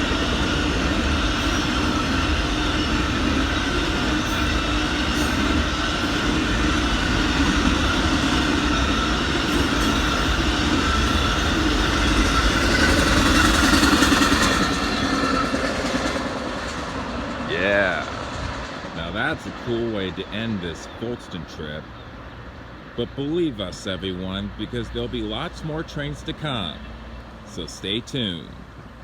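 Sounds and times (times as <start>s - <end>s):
train wheels clattering on rails: 0.0s - 20.2s.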